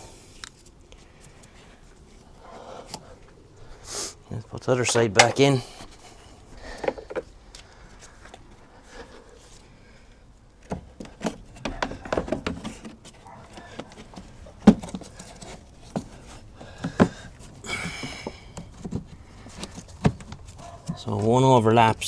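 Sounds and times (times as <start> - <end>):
plastic parts knocking and rattling: 4.8 - 5.8, 10.7 - 21.0.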